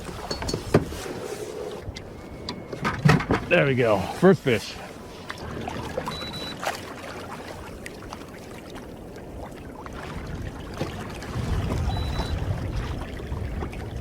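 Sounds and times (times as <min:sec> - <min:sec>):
water lapping against kayak: 0:00.0 - 0:14.0
short high beep: 0:06.0 - 0:06.6, 0:11.9 - 0:12.4.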